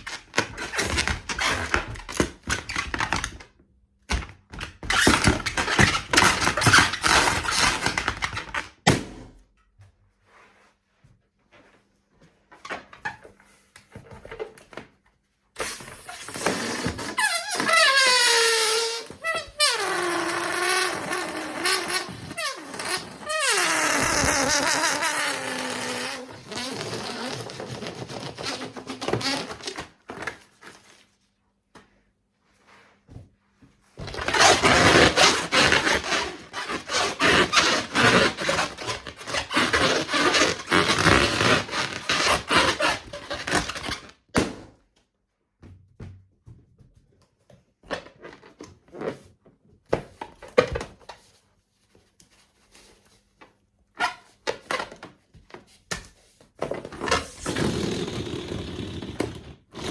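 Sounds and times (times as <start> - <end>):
rubber balloon rasping flutter: 0.0 - 3.4, 4.7 - 9.1, 15.6 - 30.6, 34.0 - 44.5, 56.6 - 59.9
short rubbery sounds: 4.8 - 8.8, 15.6 - 30.4, 34.0 - 44.2, 56.8 - 59.9.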